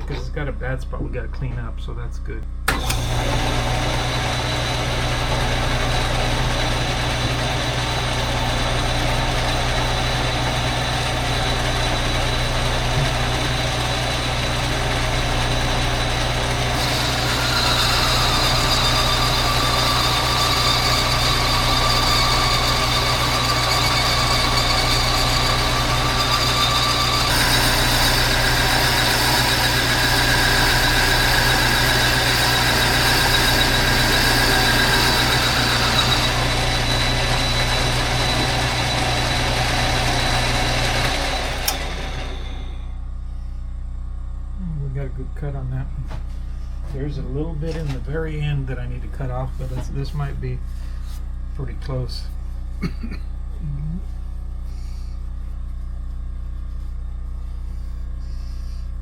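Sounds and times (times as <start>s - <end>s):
lathe cutting metal: 2.7s - 42.9s.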